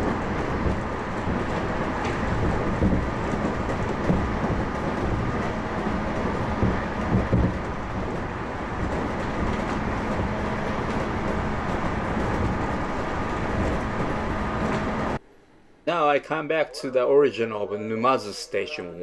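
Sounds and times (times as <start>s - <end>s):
electric train rumbling on track: 0.0s - 15.2s
loud knocks: 0.0s - 15.2s.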